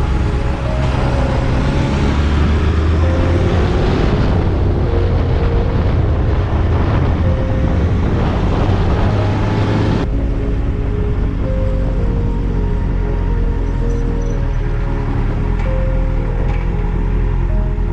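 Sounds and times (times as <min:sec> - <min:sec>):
wind rushing: 0:00.0 - 0:13.6
low engine drone: 0:00.0 - 0:17.9.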